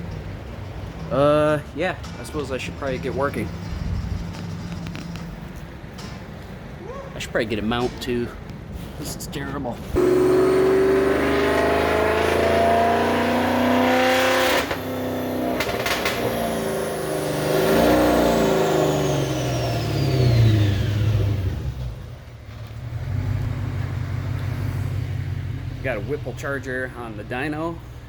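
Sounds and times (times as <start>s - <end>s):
supercharged car engine revving: 10.0s - 26.4s
supercharger whine: 10.0s - 26.6s.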